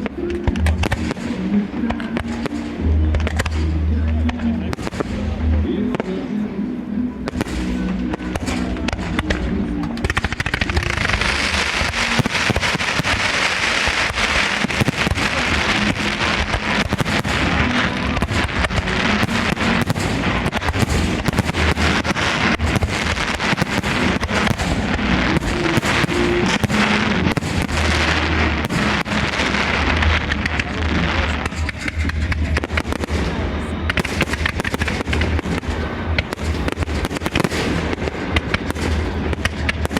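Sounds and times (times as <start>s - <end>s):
fireworks crackling and banging: 0.0s - 39.9s
music with low tones: 0.0s - 39.9s.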